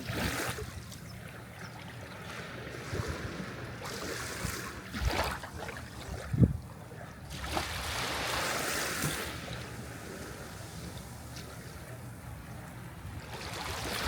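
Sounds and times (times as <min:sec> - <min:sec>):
sea waves washing in: 0:02.2 - 0:06.4, 0:07.3 - 0:14.0.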